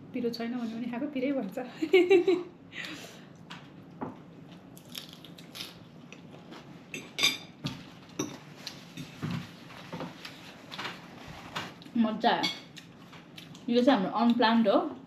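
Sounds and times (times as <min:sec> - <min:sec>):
cutlery and dishes clinking: 0:07.0 - 0:07.6.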